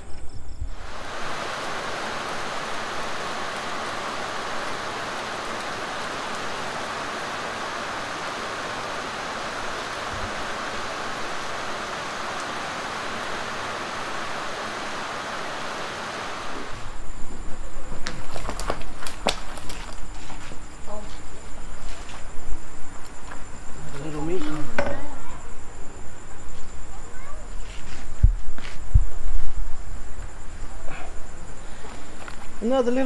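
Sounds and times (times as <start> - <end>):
rain falling on water and decking: 0.7 - 26.0.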